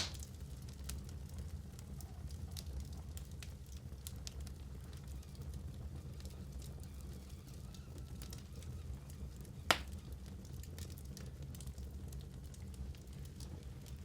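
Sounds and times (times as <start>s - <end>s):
fireplace fire crackling: 0.0s - 14.0s.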